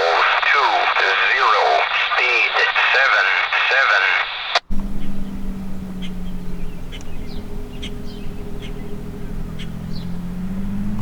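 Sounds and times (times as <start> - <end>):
steady low hum: 4.5 - 11.0.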